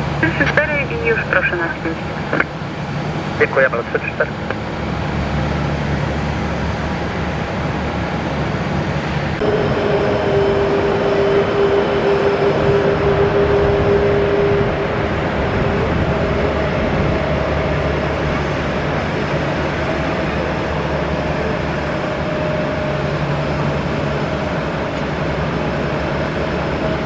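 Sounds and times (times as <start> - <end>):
jet engine whine: 0.0 - 27.0
jet engines rushing noise: 0.0 - 27.0.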